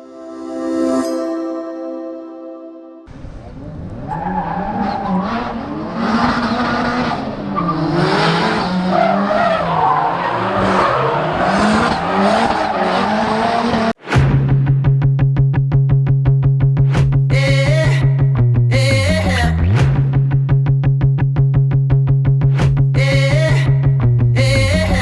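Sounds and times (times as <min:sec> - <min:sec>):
car engine revving: 0:03.1 - 0:14.0
tyres squealing and skidding: 0:03.5 - 0:14.0.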